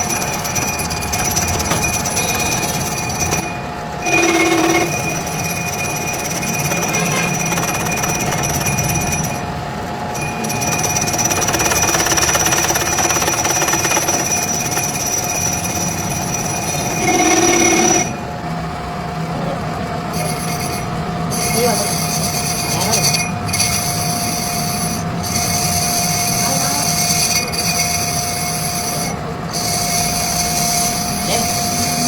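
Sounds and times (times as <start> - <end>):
grinding and scraping: 0.0 - 9.5, 10.2 - 18.3
metalworking machine whine: 0.0 - 32.0.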